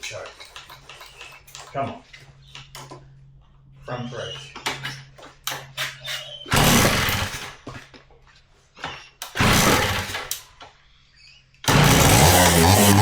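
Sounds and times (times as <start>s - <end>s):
two-stroke engine running: 6.5s - 7.6s, 9.4s - 10.3s, 11.7s - 13.0s
kick-start bursts of engine: 6.5s - 7.7s, 9.2s - 10.5s, 11.7s - 13.0s.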